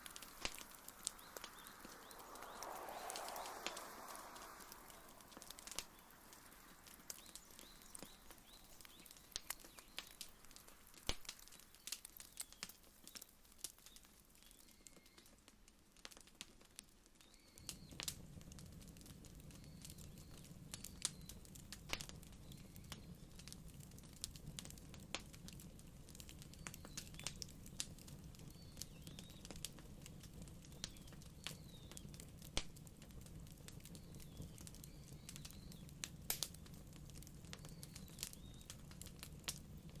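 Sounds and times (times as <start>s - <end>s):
faint bird chirps: 0.0s - 10.7s, 11.3s - 15.4s, 17.2s - 18.0s, 19.4s - 21.5s, 22.3s - 23.7s, 26.4s - 27.5s, 28.4s - 29.6s, 30.7s - 32.2s, 33.9s - 36.0s, 37.4s - 38.9s
wood fire crackling and popping: 0.0s - 40.0s.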